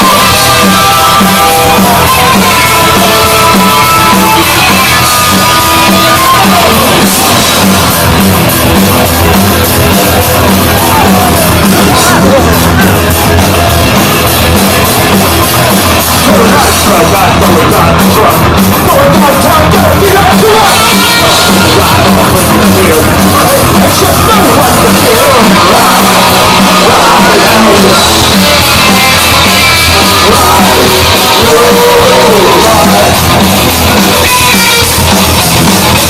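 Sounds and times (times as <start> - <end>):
bass: 0.0 - 36.0
distorted electric guitars: 0.0 - 36.0
drums: 0.0 - 36.0
shouted vocals: 0.0 - 36.0.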